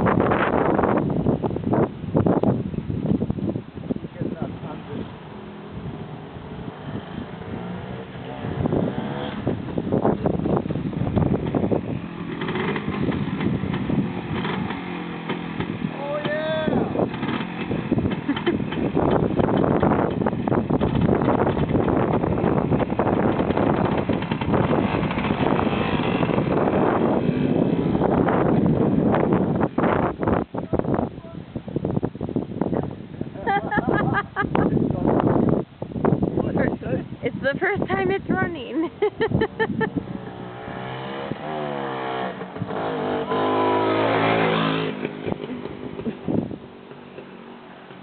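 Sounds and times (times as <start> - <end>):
two-stroke motorcycle engine running: 8.4 - 30.2.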